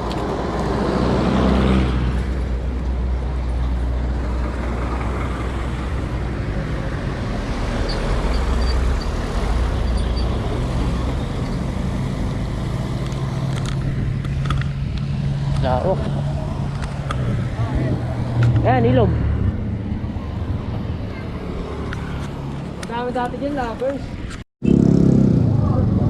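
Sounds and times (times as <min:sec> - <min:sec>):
wind rumble: 0:00.0 - 0:24.4
bicycle road noise: 0:00.0 - 0:26.0
traffic noise: 0:00.0 - 0:26.0.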